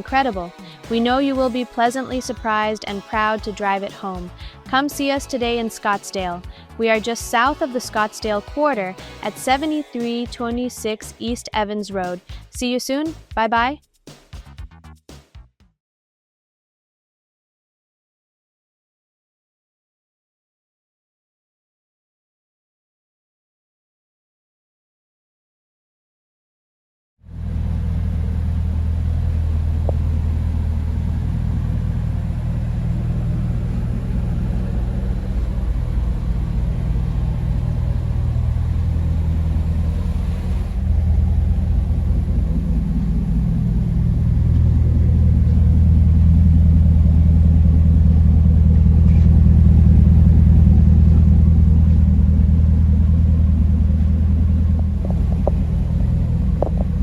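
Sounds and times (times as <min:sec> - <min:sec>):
car exhaust note: 0:27.3 - 0:57.0.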